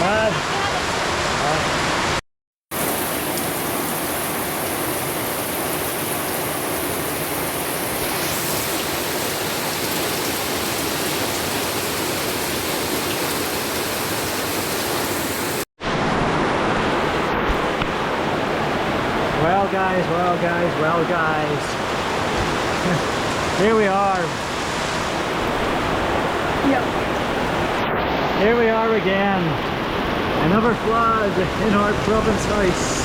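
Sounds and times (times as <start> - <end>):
heavy rain pouring: 0.0 - 33.0.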